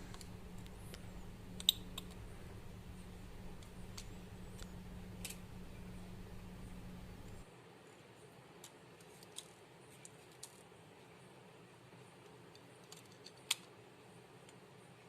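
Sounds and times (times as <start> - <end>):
small tool clicks and taps: 0.1 - 2.2.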